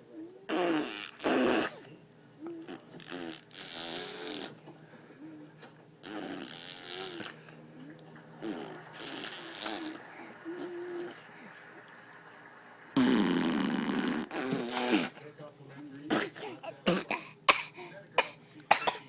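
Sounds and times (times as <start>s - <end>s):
noisy blowing bursts: 6.0s - 15.2s.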